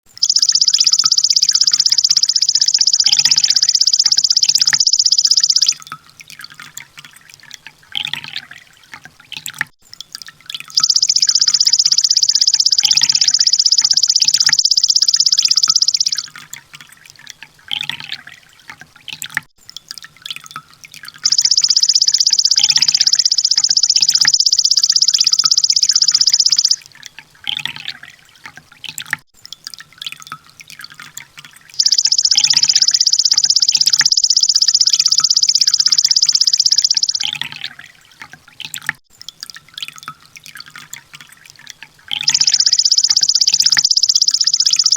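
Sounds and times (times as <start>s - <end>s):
bird rapid high ticking song: 0.1s - 5.8s, 10.7s - 16.4s, 21.2s - 26.8s, 31.8s - 37.9s, 42.1s - 44.9s
soft bird chirps: 0.1s - 5.8s, 10.8s - 16.3s, 21.2s - 26.8s, 31.8s - 37.8s, 42.1s - 44.9s.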